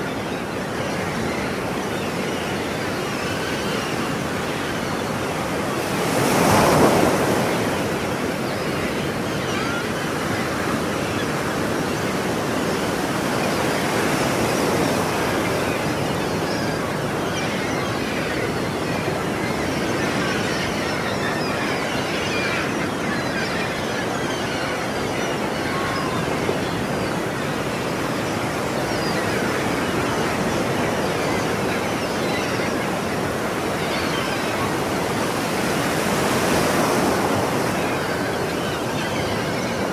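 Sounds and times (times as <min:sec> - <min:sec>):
ocean waves breaking: 0:03.2 - 0:09.7.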